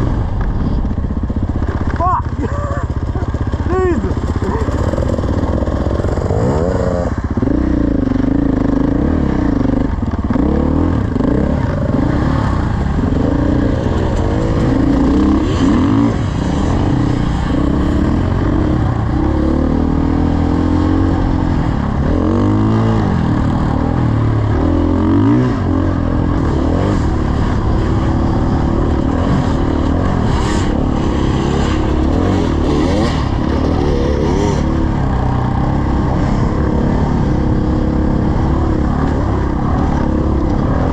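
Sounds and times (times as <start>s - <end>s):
dirt bike engine revving: 1.4s - 40.9s.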